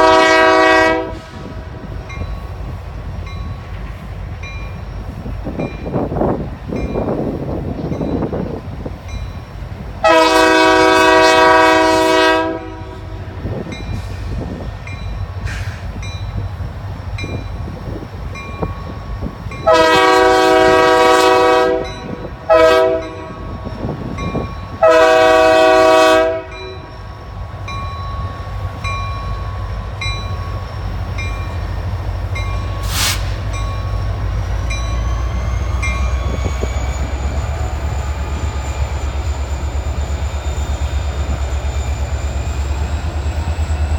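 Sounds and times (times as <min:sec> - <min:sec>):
locomotive air horn blasts: 0:00.0 - 0:01.8, 0:10.0 - 0:13.4, 0:19.6 - 0:23.5, 0:24.8 - 0:26.9, 0:32.8 - 0:33.5
train rumble: 0:00.0 - 0:43.9.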